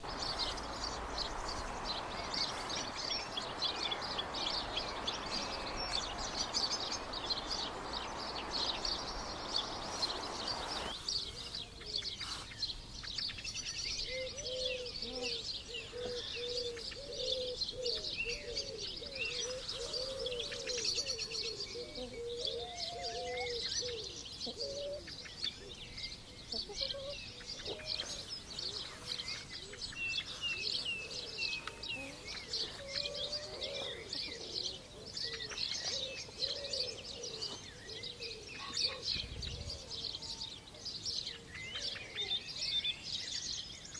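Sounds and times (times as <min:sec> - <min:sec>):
steady rushing noise: 0:00.0 - 0:11.2
small birds chirping and singing: 0:00.0 - 0:43.9
low cooing bird call: 0:14.0 - 0:42.8.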